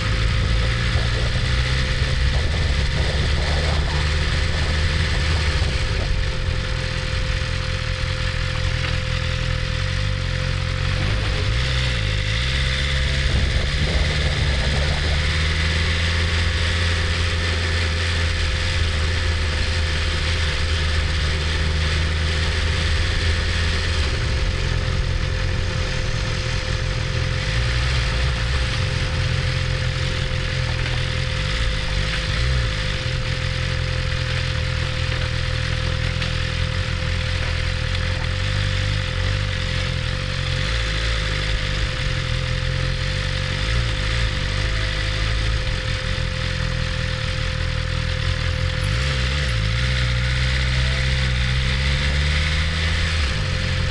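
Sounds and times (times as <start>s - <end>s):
thin whine: 0.0s - 38.2s
motorcycle engine running: 0.0s - 53.9s.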